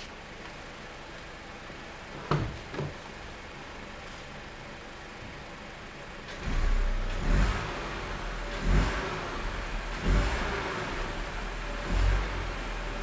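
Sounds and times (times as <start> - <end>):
car engine revving: 6.3 - 13.0.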